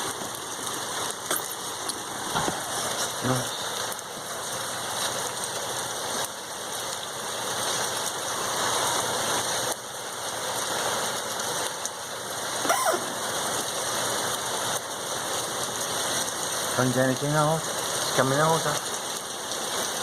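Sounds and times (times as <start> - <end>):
heavy rain pouring: 0.0 - 20.0
squeak falling in pitch: 12.6 - 13.2.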